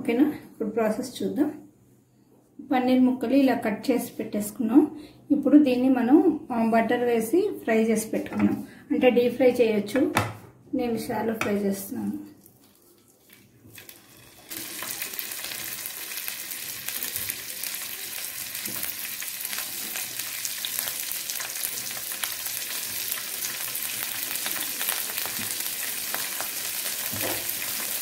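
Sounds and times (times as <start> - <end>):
paneer sizzling in butter: 12.5 - 28.0.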